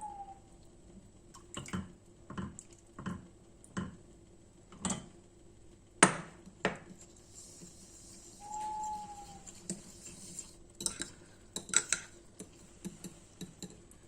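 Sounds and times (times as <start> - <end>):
dishes clinking: 10.8 - 13.8
light knocks of utensils: 10.8 - 13.8.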